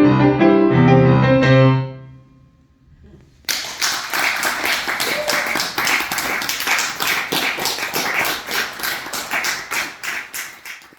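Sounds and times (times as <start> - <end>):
audience applause: 3.5 - 10.9.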